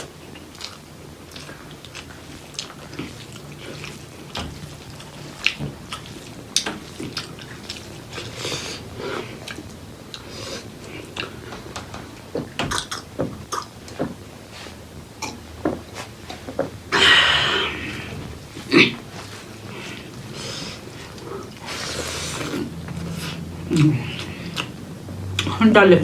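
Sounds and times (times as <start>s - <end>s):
chewing and lip smacks: 0.3s - 8.8s, 9.4s - 11.4s, 21.0s - 24.8s.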